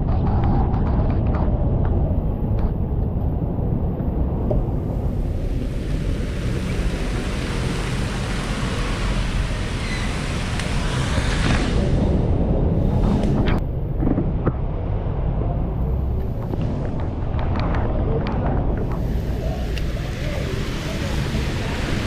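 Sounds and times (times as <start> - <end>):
wind buffeting microphone: 0.0 - 22.0
rain and road spray hiss: 4.8 - 13.4, 18.7 - 22.0.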